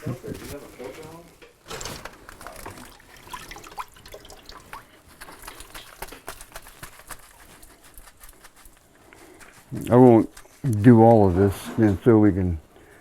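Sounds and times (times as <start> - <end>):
water dripping and splashing: 1.7 - 7.5.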